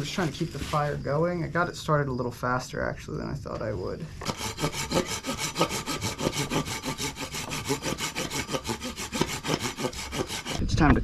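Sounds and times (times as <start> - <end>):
hand saw cutting wood: 4.2 - 10.9.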